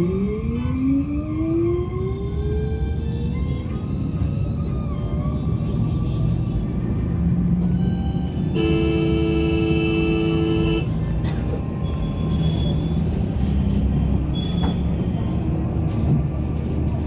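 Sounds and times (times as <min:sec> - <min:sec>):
vehicle rumble in traffic: 0:00.0 - 0:17.0
two-note car horn: 0:08.6 - 0:10.9.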